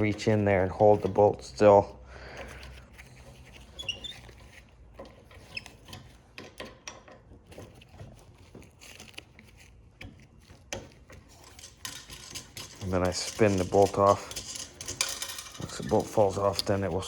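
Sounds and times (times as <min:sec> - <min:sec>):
metal parts clicking and tapping: 0:00.0 - 0:01.8, 0:02.4 - 0:17.0
faint high squeaks: 0:03.0 - 0:04.7.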